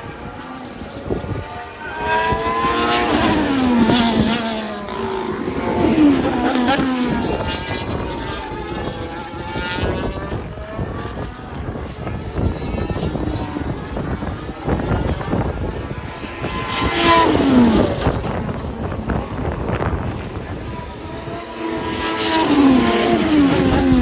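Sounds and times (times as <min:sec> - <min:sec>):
race cars passing at speed: 0:00.0 - 0:24.0.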